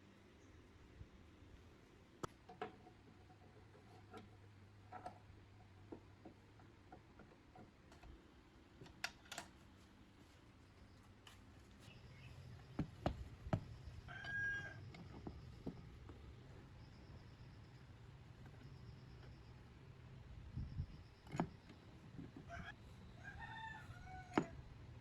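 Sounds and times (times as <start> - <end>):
light clicks and taps of tools: 8.8 - 9.6.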